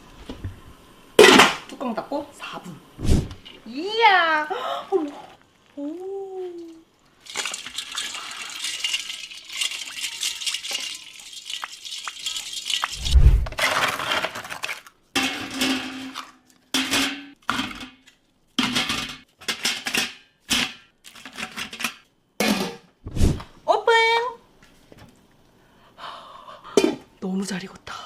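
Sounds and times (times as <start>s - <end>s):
food sizzling in a pan: 3.6s - 13.0s
kitchen clatters and clinks: 7.3s - 13.0s, 13.6s - 22.9s.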